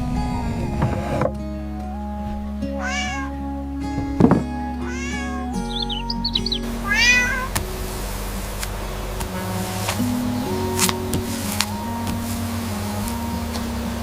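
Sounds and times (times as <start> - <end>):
background music with held notes: 0.0 - 14.0
cat meowing: 2.8 - 3.3, 4.8 - 7.6
high squeaky chirps: 4.8 - 7.6.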